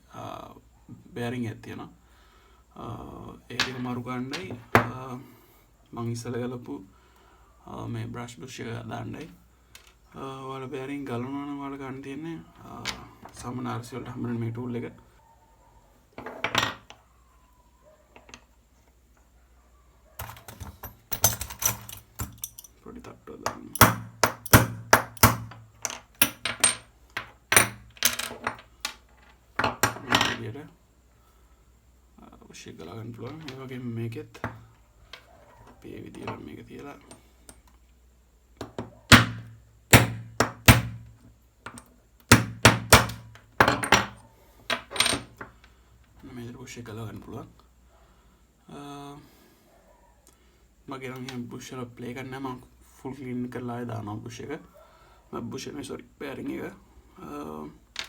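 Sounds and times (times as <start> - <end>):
metal parts clinking on workbench: 20.2 - 22.8, 23.4 - 30.4, 43.6 - 45.5.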